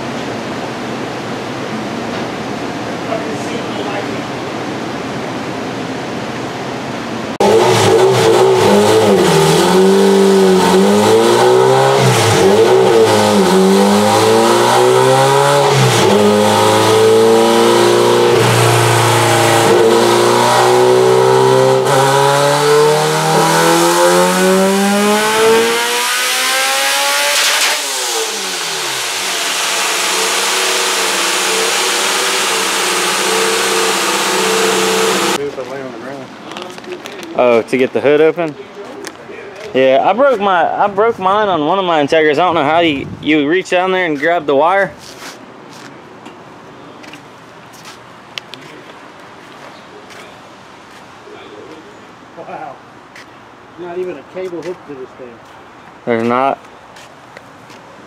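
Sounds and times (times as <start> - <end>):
car engine revving: 7.4 - 35.4.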